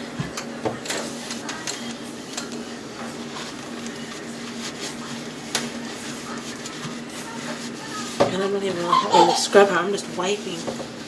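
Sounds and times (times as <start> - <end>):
paper towel wiping microwave: 0.0 - 11.0.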